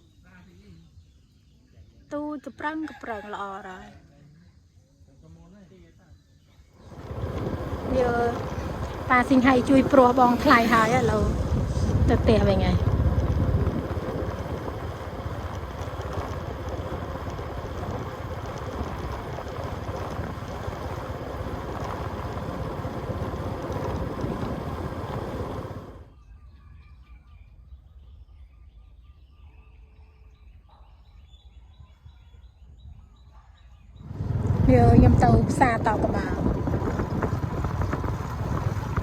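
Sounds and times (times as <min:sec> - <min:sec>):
faint bird chirps: 0:00.0 - 0:07.3, 0:26.1 - 0:34.4
steady rushing noise: 0:06.8 - 0:26.1, 0:34.0 - 0:39.0.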